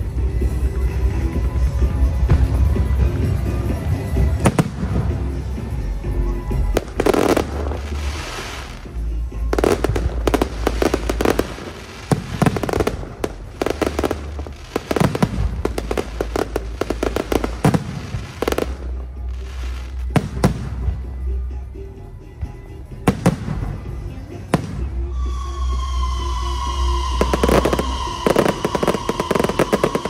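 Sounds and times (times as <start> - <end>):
fireworks bangs and crackling: 0.0 - 21.2, 23.0 - 30.0.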